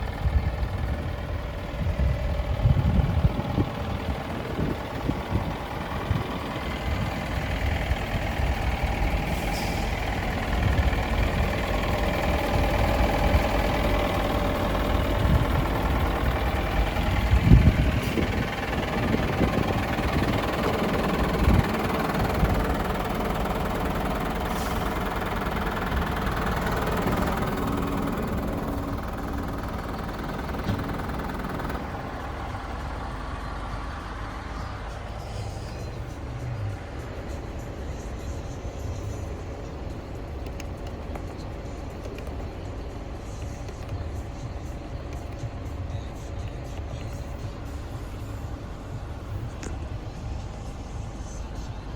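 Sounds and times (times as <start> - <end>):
truck engine running: 0.0 - 51.9.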